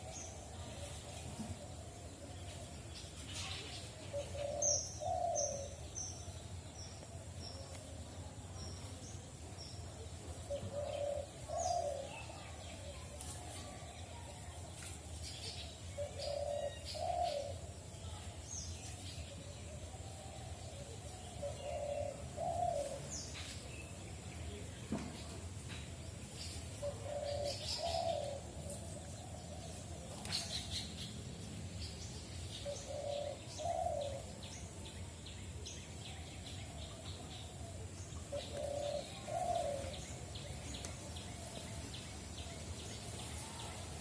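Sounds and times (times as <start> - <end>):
dove cooing: 4.1 - 5.8, 10.5 - 12.3, 16.0 - 17.6, 21.0 - 23.2, 26.8 - 29.7, 32.6 - 34.4, 38.3 - 40.3.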